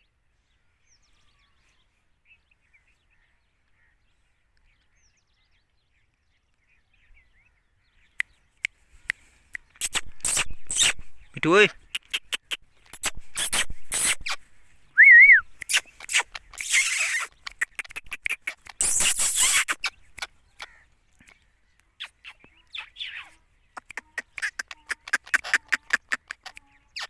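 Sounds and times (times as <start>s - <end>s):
clicks and scratches: 9.6s - 11.3s, 11.9s - 14.5s, 15.5s - 20.4s, 23.8s - 27.0s
parrot whistle call: 15.0s - 17.3s.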